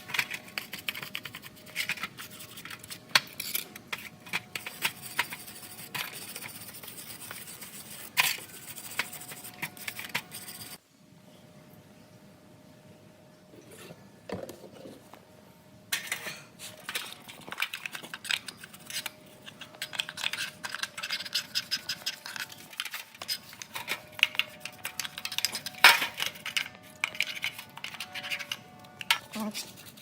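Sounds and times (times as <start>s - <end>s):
small metal parts clinking: 15.9s - 29.6s.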